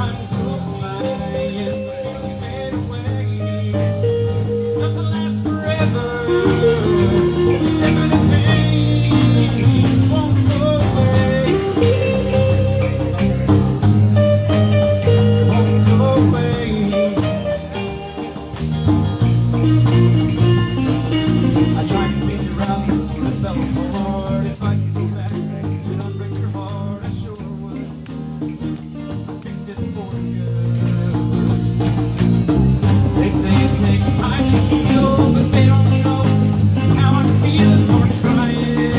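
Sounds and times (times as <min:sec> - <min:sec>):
bending lead melody: 0:00.0 - 0:23.9
bass line: 0:00.0 - 0:38.9
drums: 0:00.0 - 0:38.9.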